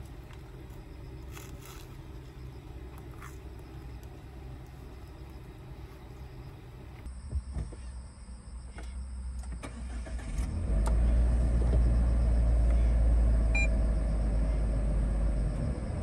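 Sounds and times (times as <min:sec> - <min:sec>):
van engine starting and idling: 0:00.0 - 0:07.1, 0:09.4 - 0:16.0
short electronic beep: 0:13.5 - 0:13.8.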